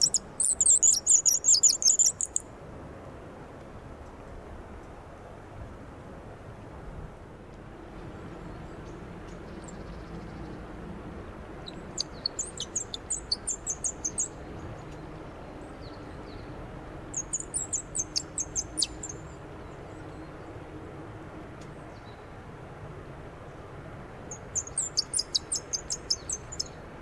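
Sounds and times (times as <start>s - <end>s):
wooden bird call squeaky chirps: 0.0s - 2.4s, 11.7s - 14.3s, 24.6s - 26.4s.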